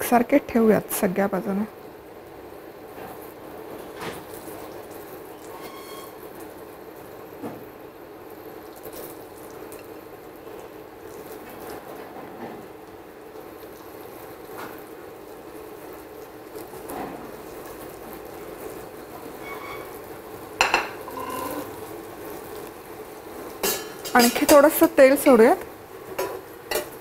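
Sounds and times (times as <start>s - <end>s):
slices sizzling in oil: 2.8s - 7.3s, 7.9s - 27.0s.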